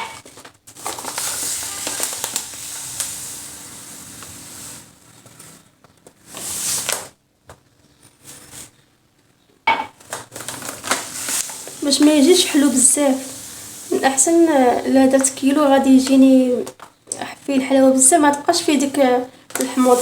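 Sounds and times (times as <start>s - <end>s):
sugar pouring into a bowl: 0.7s - 5.6s, 6.2s - 7.1s, 10.6s - 16.6s, 19.6s - 20.0s.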